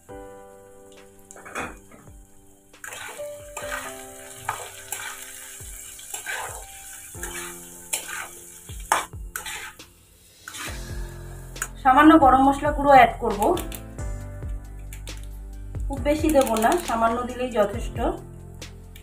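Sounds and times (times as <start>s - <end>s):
oil sizzling: 0.0s - 12.6s
spatula scraping pan: 2.8s - 5.2s, 5.8s - 10.8s.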